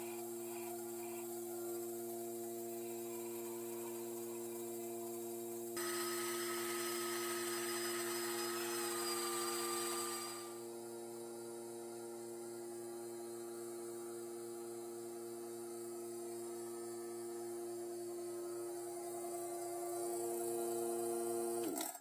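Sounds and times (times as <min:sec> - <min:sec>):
tool hissing on spinning wood: 0:05.8 - 0:10.6
wood lathe motor hum: 0:05.8 - 0:10.7.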